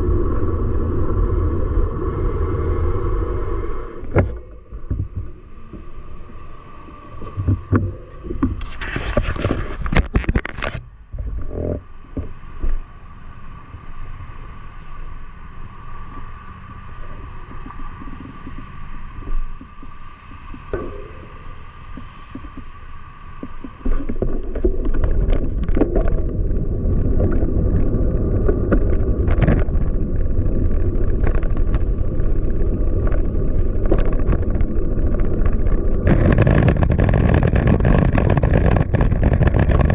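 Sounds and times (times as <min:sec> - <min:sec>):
bicycle tyre and road noise: 0:00.0 - 0:39.9
wind rumble on microphone: 0:00.0 - 0:39.9
bicycle rattling: 0:23.8 - 0:39.9.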